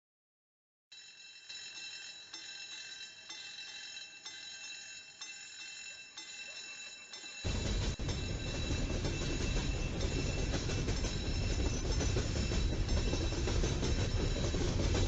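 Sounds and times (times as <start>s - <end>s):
crossing warning bell ringing: 0.9s - 15.0s
wheels clacking at rail joints: 1.8s - 15.0s
train wheels rumbling on rails: 7.4s - 15.0s.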